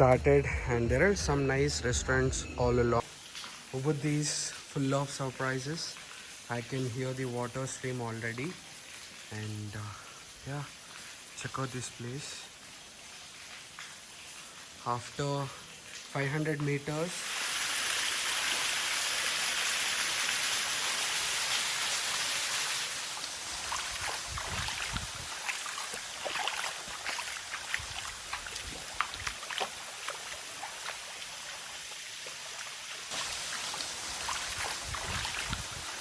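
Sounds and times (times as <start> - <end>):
stream water rushing: 16.2 - 36.0.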